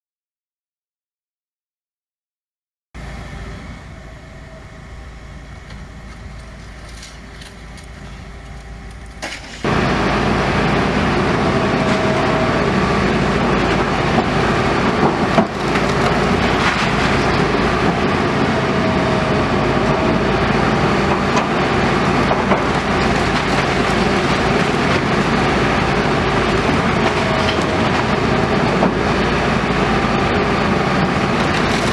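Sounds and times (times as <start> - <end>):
diesel engine running: 3.0 - 31.9
wood and rubble crunching: 8.9 - 31.9.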